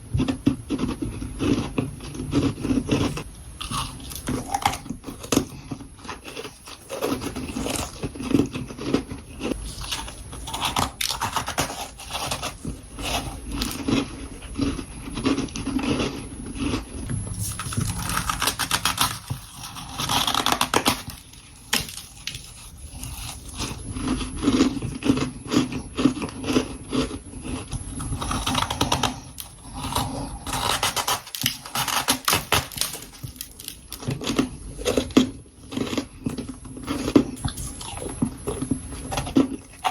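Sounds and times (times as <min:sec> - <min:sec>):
frost being chewed: 0:00.0 - 0:39.9.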